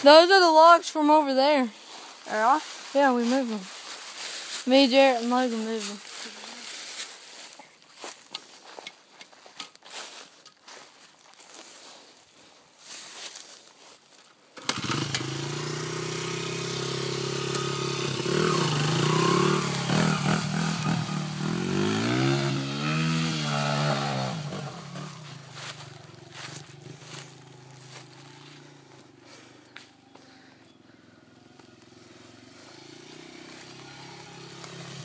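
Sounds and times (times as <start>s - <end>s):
dirt bike engine revving: 14.6s - 35.0s.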